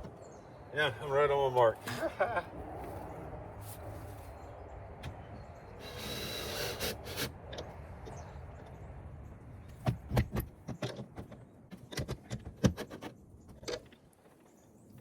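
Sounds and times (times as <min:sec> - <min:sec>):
metallic clicks and knocks: 0:09.8 - 0:14.0.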